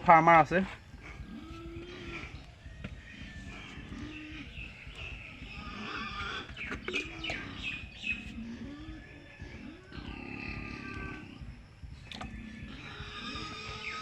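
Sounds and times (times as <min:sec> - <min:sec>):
pigs squealing: 0:00.9 - 0:14.0.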